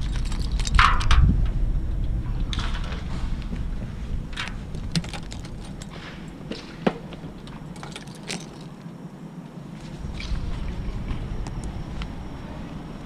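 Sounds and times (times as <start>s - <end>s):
low rumble: 0.0s - 13.0s
short metallic jangles: 4.7s - 6.4s.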